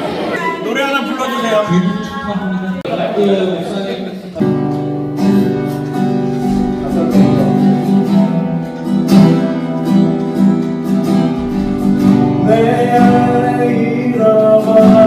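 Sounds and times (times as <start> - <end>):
acoustic guitar strumming chords: 4.4 - 15.0.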